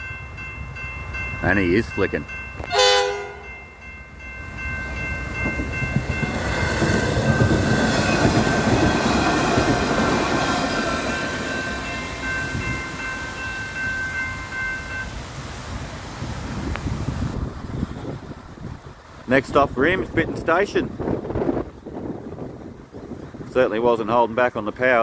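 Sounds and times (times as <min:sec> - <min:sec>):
diesel railcar passing: 0:00.0 - 0:25.0
wheels on rails: 0:03.4 - 0:19.6.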